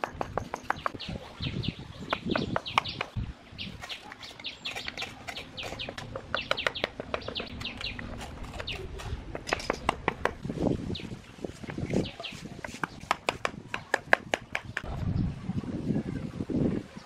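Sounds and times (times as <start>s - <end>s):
small birds chirping: 0.4s - 9.2s, 10.6s - 15.3s.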